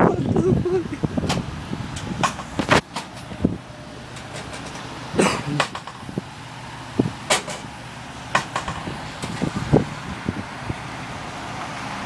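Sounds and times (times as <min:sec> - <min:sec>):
car engine running: 0:00.0 - 0:11.9
sharp knocks and clicks: 0:02.0 - 0:03.3, 0:04.1 - 0:04.9, 0:05.6 - 0:06.1, 0:07.3 - 0:07.7, 0:08.3 - 0:09.4.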